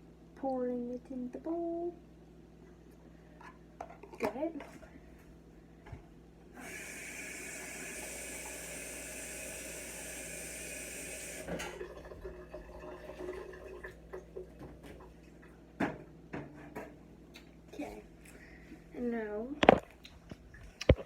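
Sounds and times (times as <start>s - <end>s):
water running from a tap: 6.6s - 14.5s.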